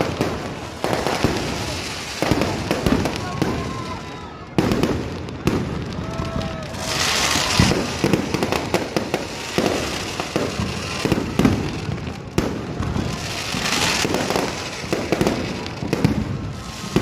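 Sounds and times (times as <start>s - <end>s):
fireworks hissing: 0.0s - 17.0s
fireworks popping and banging: 0.0s - 17.0s.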